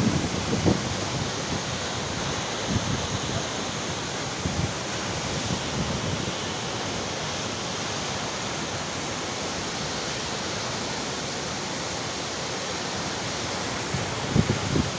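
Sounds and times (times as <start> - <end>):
waterfall rushing: 0.0 - 14.9
wind bumps on microphone: 13.9 - 14.9.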